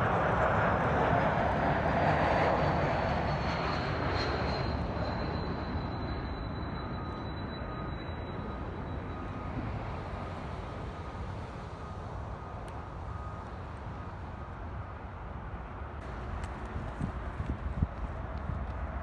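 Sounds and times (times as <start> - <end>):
high turbine whine: 0.0 - 14.2
jet airliner engine noise: 0.0 - 19.0.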